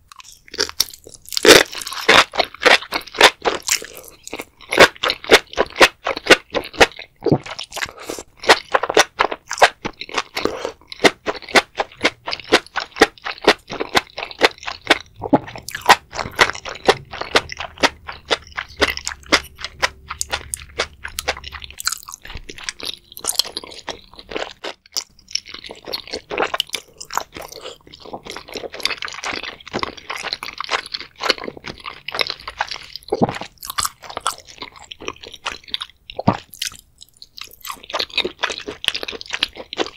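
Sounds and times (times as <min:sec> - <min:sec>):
crunchy chewing: 0:00.1 - 0:39.9.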